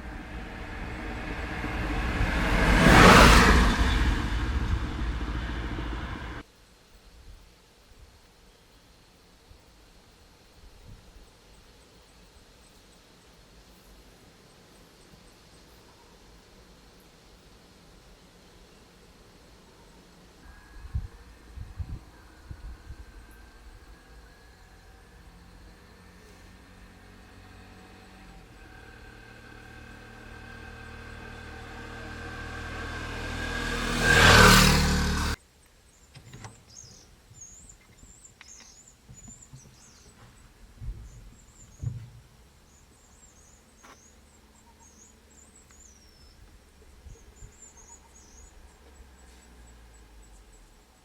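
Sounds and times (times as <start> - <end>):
vehicle engine approaching: 0.0 - 6.4, 20.4 - 35.4
faint bird twittering: 42.6 - 51.0.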